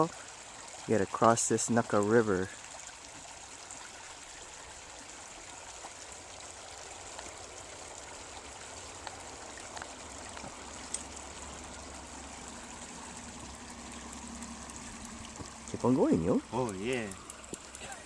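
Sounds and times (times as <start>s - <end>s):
stream water running: 0.0s - 18.0s
faint small clicks: 16.6s - 18.0s.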